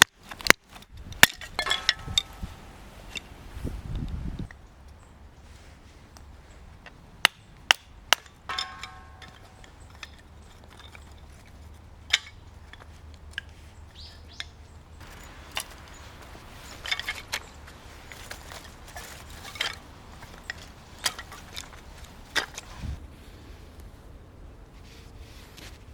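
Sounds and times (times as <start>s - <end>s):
metallic clink: 1.2s - 3.3s, 7.3s - 22.7s.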